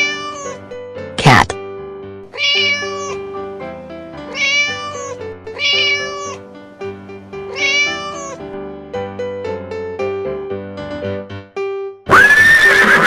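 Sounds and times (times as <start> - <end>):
cat meowing: 0.0 - 0.7, 2.3 - 3.3, 4.2 - 6.5, 7.4 - 8.5
background music: 0.0 - 12.0.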